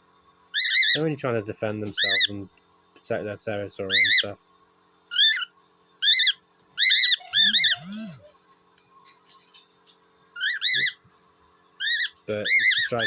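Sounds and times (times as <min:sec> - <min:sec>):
cockatiels chirping sharply: 0:05.1 - 0:08.3, 0:10.4 - 0:11.0, 0:11.8 - 0:13.0
low rising-falling bird calls: 0:06.1 - 0:08.4.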